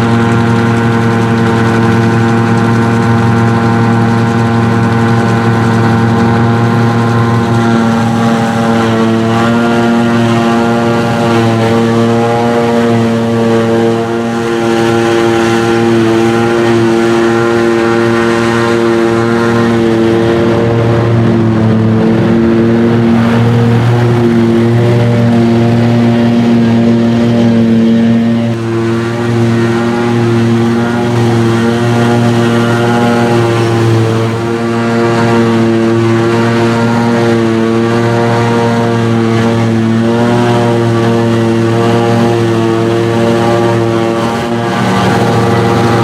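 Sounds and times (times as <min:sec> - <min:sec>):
diesel machinery engine drone: 0:00.0 - 0:46.0.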